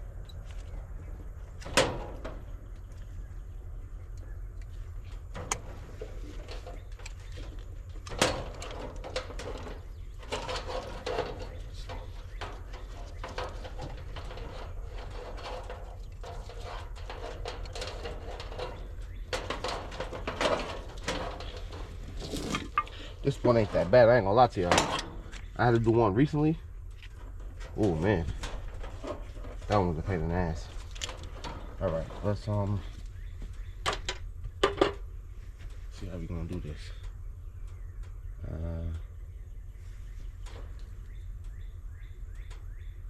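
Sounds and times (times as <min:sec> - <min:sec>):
steady low hum: 0:00.0 - 0:43.0
tools clattering: 0:05.3 - 0:23.8.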